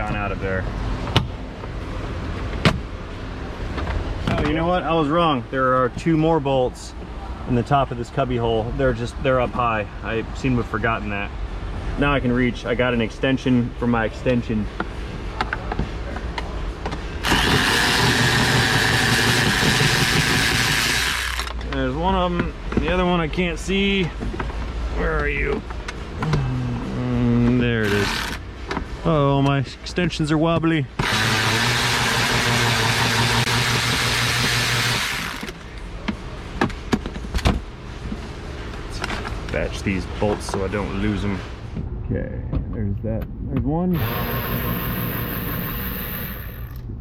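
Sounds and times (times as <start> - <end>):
power ratchet hissing: 17.2 - 21.5, 27.8 - 28.4, 31.0 - 35.6, 44.0 - 46.8
ratchet clicking: 17.2 - 21.6, 27.8 - 28.4, 44.0 - 46.8.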